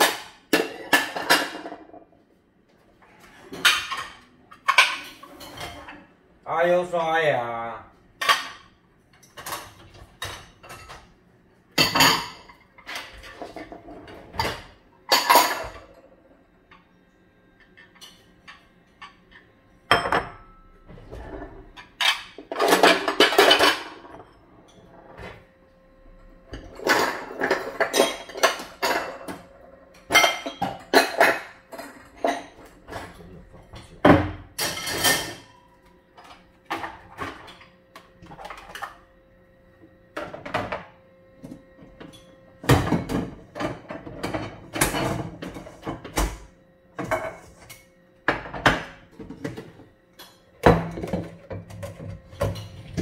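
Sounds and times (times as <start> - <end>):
dishes and cutlery clinking: 0.0 - 2.1, 3.1 - 6.1, 8.2 - 11.1, 11.8 - 16.0, 17.6 - 25.4, 26.4 - 39.0.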